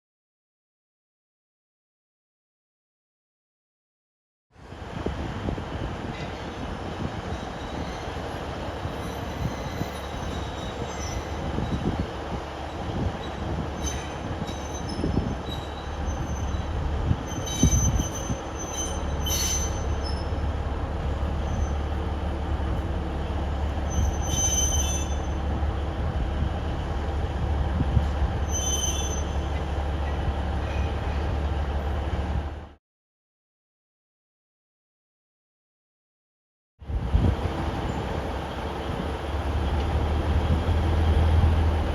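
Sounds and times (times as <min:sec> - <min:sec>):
diesel locomotive engine rumble: 0:04.6 - 0:32.8, 0:36.8 - 0:41.9
high-pitched wheel squeals: 0:07.3 - 0:12.0, 0:12.7 - 0:20.5, 0:21.4 - 0:22.0, 0:23.8 - 0:25.5, 0:28.4 - 0:31.2.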